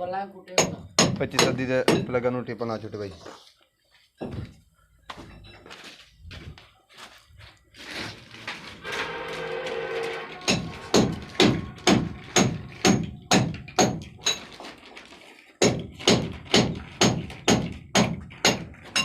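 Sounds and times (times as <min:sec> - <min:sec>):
hammering: 0:00.6 - 0:02.2, 0:08.9 - 0:14.6, 0:15.6 - 0:19.0.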